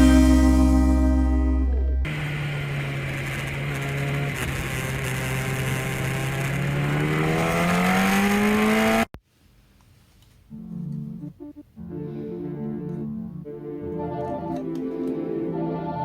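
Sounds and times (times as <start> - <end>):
engine-like drone rising in pitch: 0.0 - 9.1.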